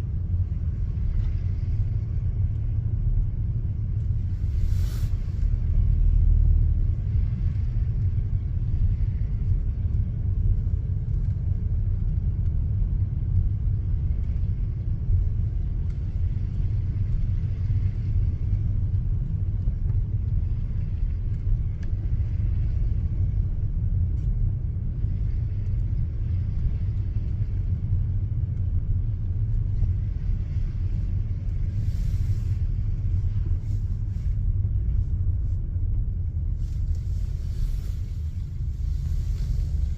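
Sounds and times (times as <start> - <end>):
car engine and road noise: 0.0 - 39.9
brief hiss: 4.5 - 5.4.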